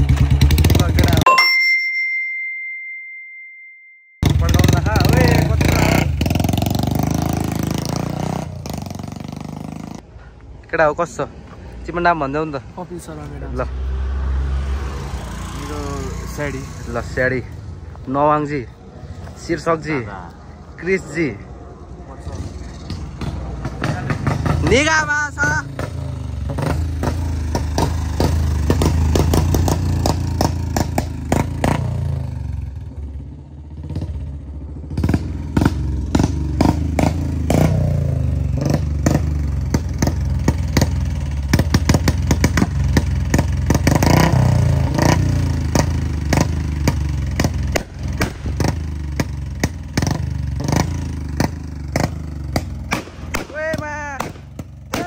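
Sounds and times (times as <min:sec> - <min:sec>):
motorcycle engine revving: 0:00.0 - 0:01.3, 0:04.2 - 0:10.1, 0:12.9 - 0:18.7, 0:20.7 - 0:55.0
exhaust pops and crackles: 0:38.6 - 0:44.4, 0:45.6 - 0:55.0.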